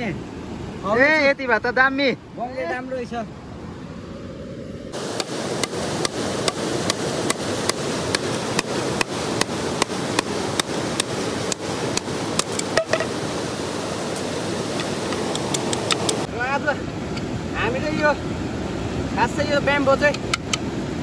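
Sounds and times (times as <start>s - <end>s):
steady rushing noise: 0.0s - 21.0s
blade chopping bamboo: 5.1s - 13.2s, 14.7s - 16.3s.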